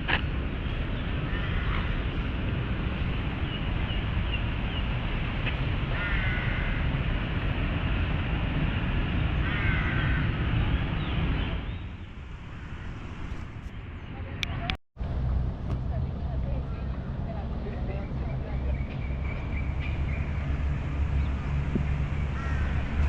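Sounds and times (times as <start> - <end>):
city traffic rumble: 0.0 - 23.0
wind on microphone: 0.0 - 23.0
bird harsh calls: 0.6 - 2.1, 5.9 - 6.8, 9.4 - 12.0, 22.2 - 23.0.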